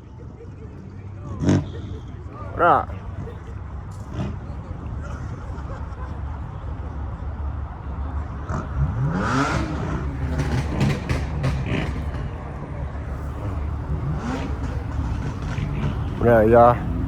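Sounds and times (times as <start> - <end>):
car engine idling and revving: 8.1 - 17.0.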